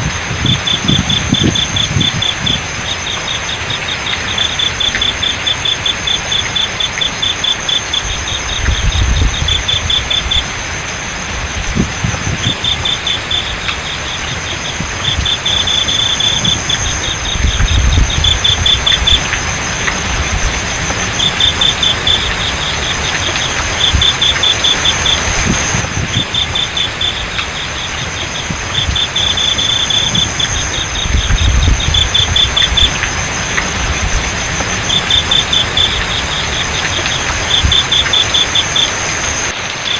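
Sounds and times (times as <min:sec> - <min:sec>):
crickets chirping: 0:00.0 - 0:39.9
flowing water: 0:00.0 - 0:39.9
high-pitched insect trill: 0:00.0 - 0:39.9
low rumbles: 0:03.7 - 0:29.2.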